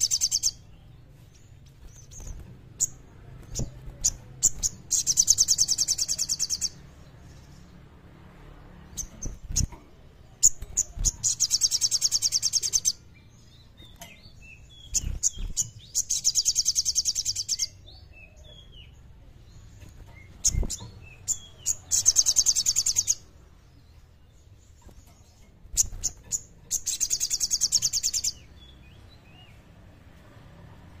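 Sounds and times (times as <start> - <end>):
songbird trilling: 0.0 - 0.7, 2.8 - 6.8, 25.8 - 28.7.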